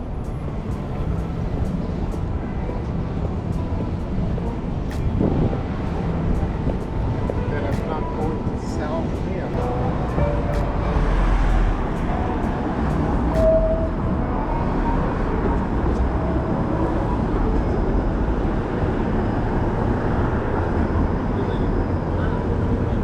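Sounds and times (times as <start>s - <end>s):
passing vehicles rumbling: 0.0s - 23.0s
short squeal: 13.4s - 14.0s.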